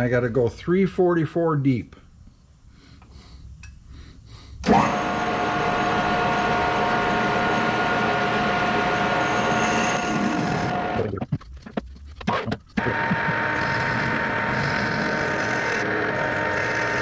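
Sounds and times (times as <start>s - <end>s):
machine tool drill whining: 4.6s - 11.1s, 12.8s - 17.0s.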